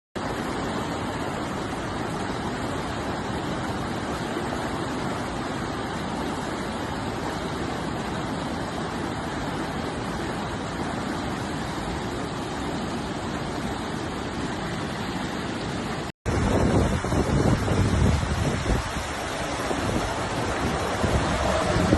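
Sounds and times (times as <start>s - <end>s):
floodwater rushing: 0.2s - 21.9s
wind buffeting microphone: 16.3s - 21.9s.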